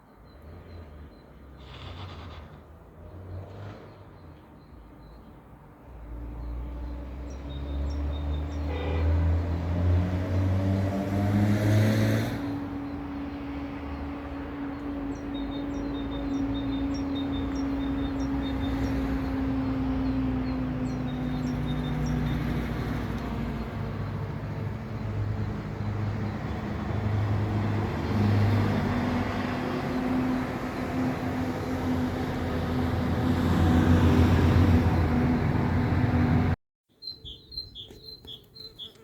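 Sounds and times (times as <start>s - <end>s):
small bird chirping: 37.0s - 39.0s.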